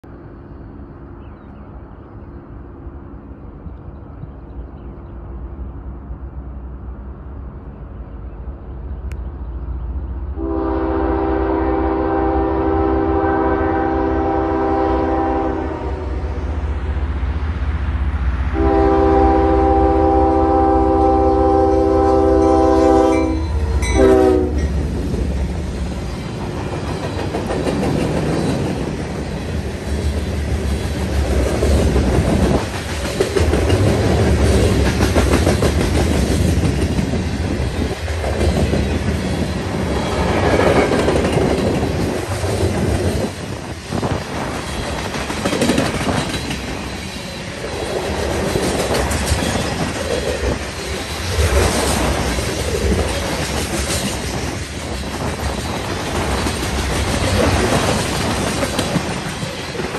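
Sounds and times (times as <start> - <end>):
diesel locomotive rumble: 0.0 - 59.9
train air horn blasts: 10.4 - 16.4, 18.5 - 24.7
wheels clacking over rail joints: 22.4 - 59.9.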